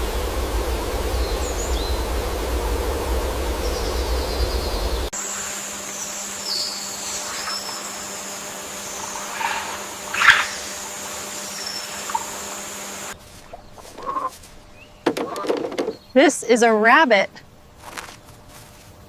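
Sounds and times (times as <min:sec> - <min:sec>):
heavy low rumble: 0:00.0 - 0:05.1
high-pitched whine: 0:00.0 - 0:13.2
bird chirps: 0:05.9 - 0:12.8, 0:13.4 - 0:16.3.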